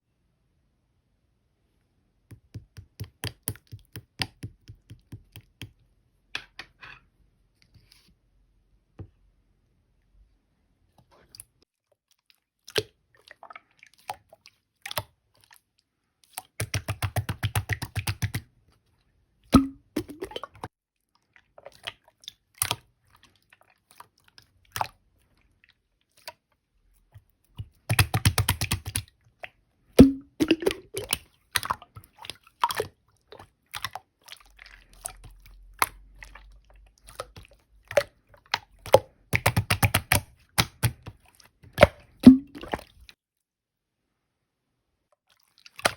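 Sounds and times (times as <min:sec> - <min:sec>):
rapid clicking of slime: 0:02.3 - 0:05.8, 0:16.5 - 0:18.5, 0:27.5 - 0:29.1, 0:37.2 - 0:42.2.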